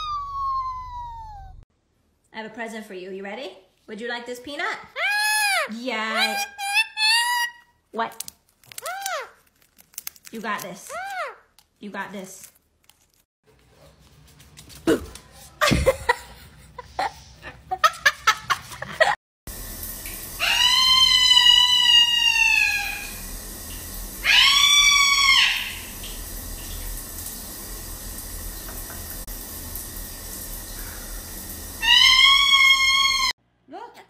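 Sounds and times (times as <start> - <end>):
parrot calling: 4.9 - 7.7, 20.4 - 23.2, 24.2 - 25.9, 31.8 - 33.3.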